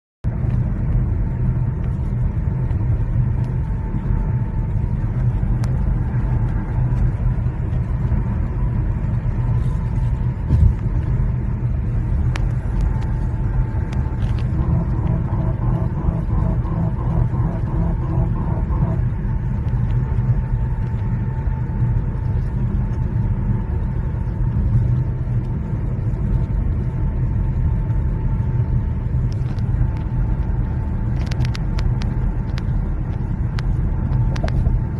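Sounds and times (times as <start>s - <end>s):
car engine and tyres cruising: 0.3s - 34.9s
faint pulsing tone: 3.3s - 23.9s.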